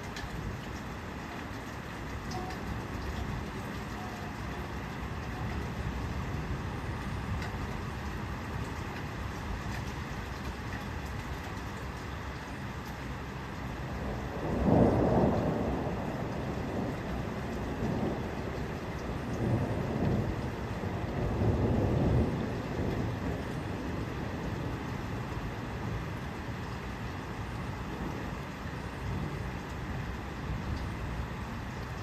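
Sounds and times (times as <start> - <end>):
rain falling: 0.0 - 32.0
thunder rumbling: 13.7 - 32.0.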